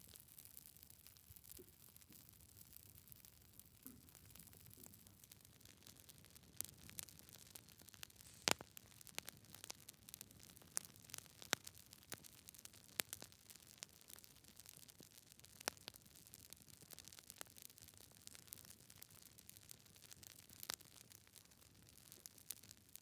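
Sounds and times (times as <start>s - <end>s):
log fire crackling and popping: 0.0s - 23.0s
faint hiss: 8.0s - 8.8s.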